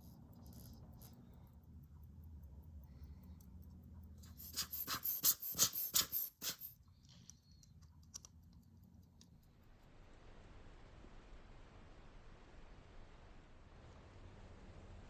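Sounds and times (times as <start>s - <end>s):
faint ticks: 0.0s - 4.7s, 6.8s - 10.0s
sharp clicks: 0.0s - 9.6s.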